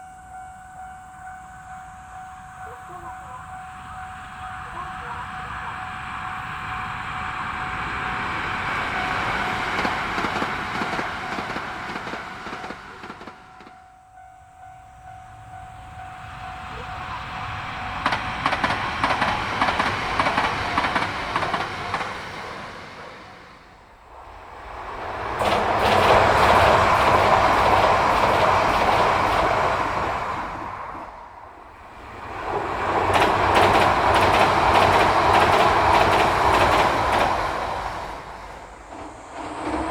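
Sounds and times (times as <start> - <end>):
train running on rails: 0.0 - 39.9
wheels clicking over rails: 7.8 - 13.8, 16.6 - 39.9.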